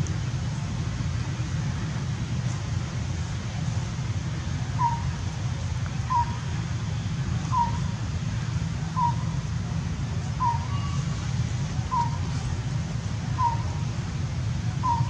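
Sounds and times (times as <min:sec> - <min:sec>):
bird whistled call: 0:04.8 - 0:05.2, 0:06.1 - 0:06.4, 0:07.5 - 0:07.9, 0:09.0 - 0:09.3, 0:10.4 - 0:11.0, 0:11.9 - 0:12.3, 0:13.4 - 0:13.8.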